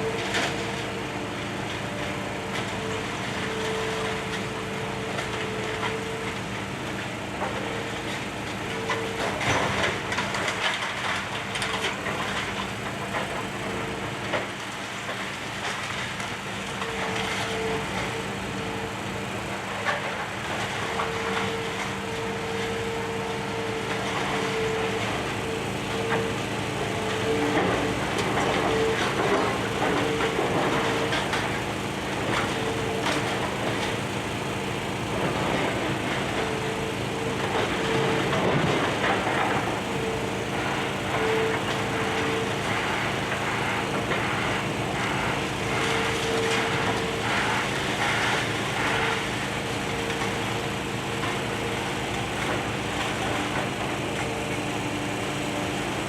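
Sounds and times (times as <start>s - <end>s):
excavator engine hum: 0.0s - 56.0s
hydraulic whine: 16.4s - 56.0s.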